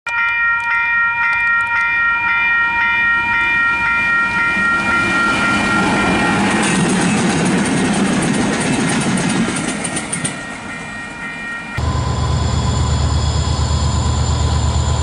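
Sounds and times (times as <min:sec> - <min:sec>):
level crossing bells ringing: 0:00.1 - 0:06.9
train rumbling past: 0:03.0 - 0:15.0.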